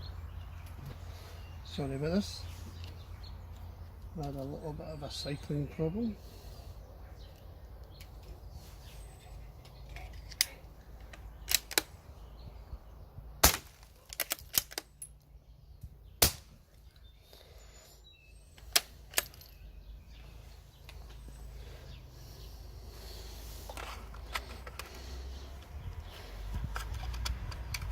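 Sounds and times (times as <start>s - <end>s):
rifle bolt metallic clicks: 10.1s - 12.0s, 14.1s - 15.2s, 26.7s - 27.9s
loud sharp cracks: 13.4s - 14.9s, 16.2s - 16.6s.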